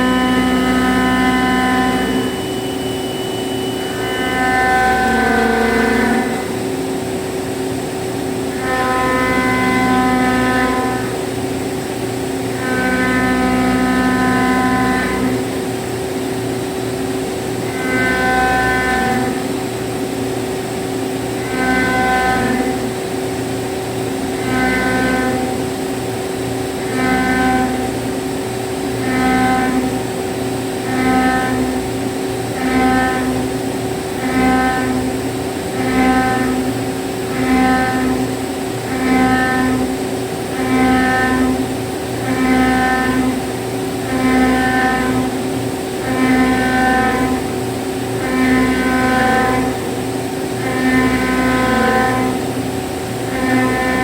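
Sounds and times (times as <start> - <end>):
milling machine hum: 0.0 - 54.0.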